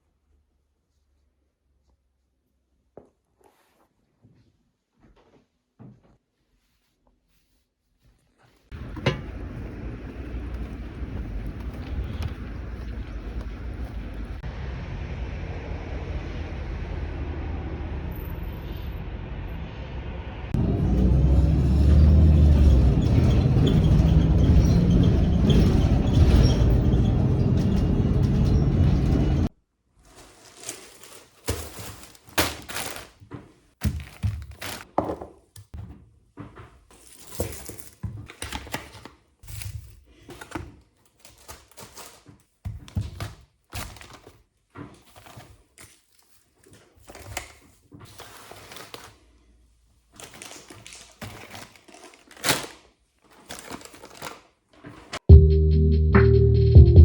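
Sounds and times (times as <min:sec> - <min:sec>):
household objects knocking and clicking: 0:08.7 - 0:13.6
lo-fi background music: 0:55.3 - 0:57.0.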